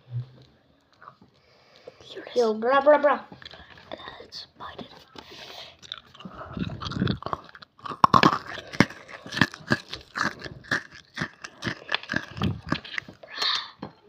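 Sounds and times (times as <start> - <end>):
candy crunching while chewed: 3.3 - 13.8.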